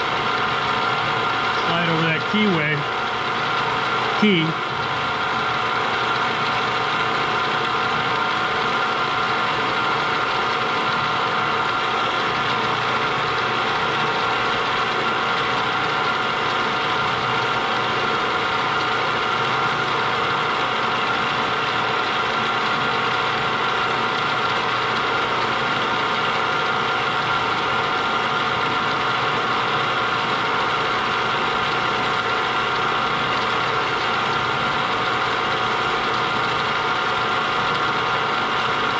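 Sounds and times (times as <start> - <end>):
milling machine whining: 0.0 - 38.9.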